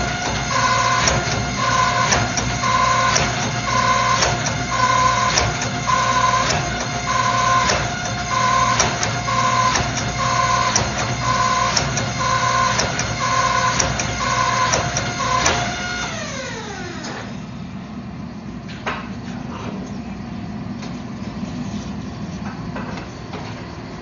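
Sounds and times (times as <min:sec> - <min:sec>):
machine pulsing and winding down: 0:00.0 - 0:17.5.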